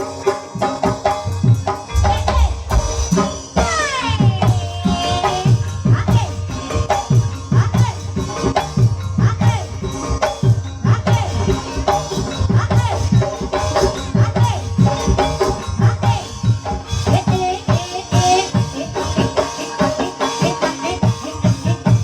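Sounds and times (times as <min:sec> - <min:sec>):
drums struck in steady rhythm: 0:00.0 - 0:22.0.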